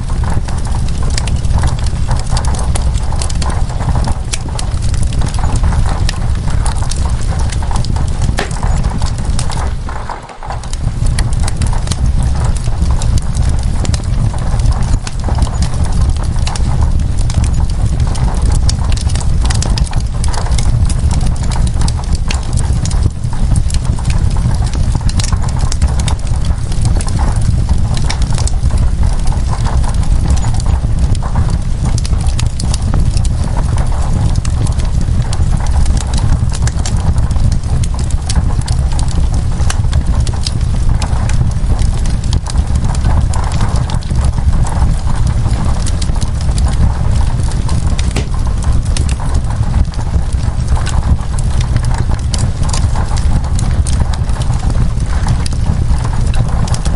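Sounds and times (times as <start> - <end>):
wood fire crackling: 0.0 - 56.9
rain hissing: 8.0 - 12.2, 47.0 - 49.2.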